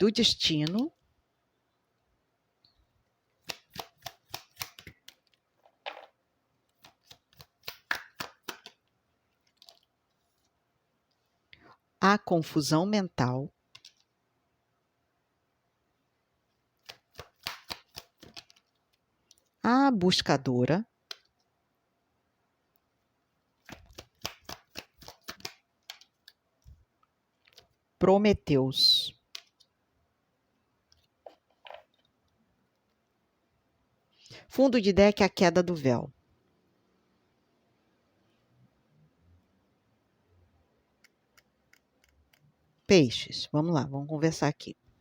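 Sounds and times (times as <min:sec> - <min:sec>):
cards rustling: 0:03.4 - 0:06.1, 0:06.7 - 0:10.5, 0:16.8 - 0:19.5, 0:23.6 - 0:26.4
cards clicking on a table: 0:03.4 - 0:08.9, 0:16.8 - 0:18.7, 0:23.6 - 0:26.4.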